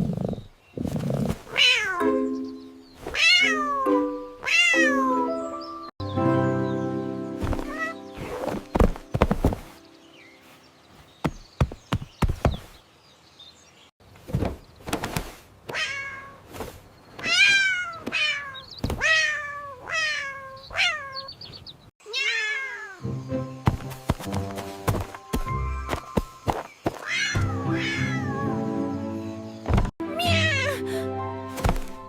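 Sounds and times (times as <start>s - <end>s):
cat meowing: 1.5s - 2.1s, 3.1s - 5.3s, 17.2s - 21.3s, 22.1s - 23.0s, 27.0s - 28.6s, 30.2s - 30.8s.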